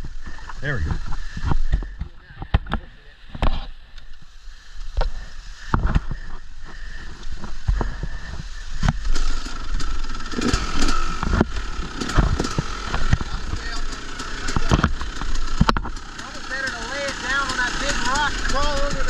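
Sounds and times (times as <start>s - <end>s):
motorcycle engine running: 0.0s - 19.0s
knocks and clunks on rocks: 5.7s - 6.4s.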